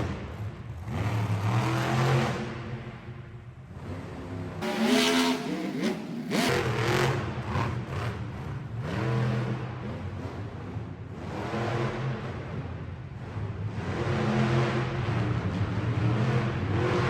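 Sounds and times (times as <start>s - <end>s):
truck engine revving: 3.7s - 12.6s.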